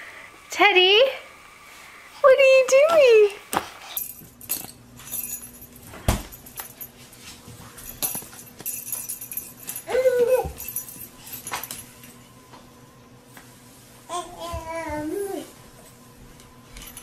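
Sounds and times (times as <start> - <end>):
dog whimpering: 9.9 - 10.6.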